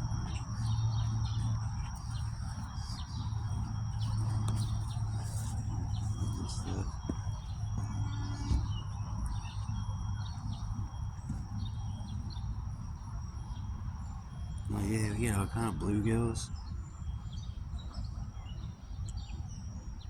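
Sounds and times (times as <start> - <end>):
birds chirping: 0.0 - 20.0
high-pitched insect drone: 0.0 - 20.0
low steady rumble: 0.0 - 20.0.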